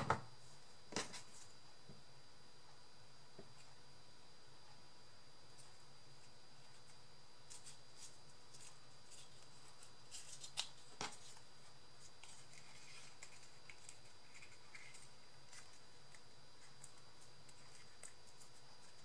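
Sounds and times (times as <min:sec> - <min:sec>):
paper and chipboard rustling: 0:06.6 - 0:19.0.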